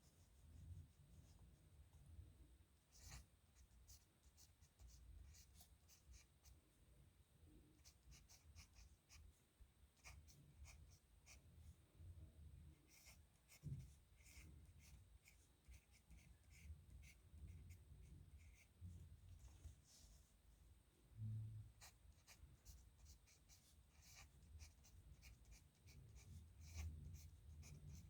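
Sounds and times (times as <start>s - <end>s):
pen scratching on paper: 7.8s - 9.2s, 12.9s - 17.8s, 21.8s - 28.0s.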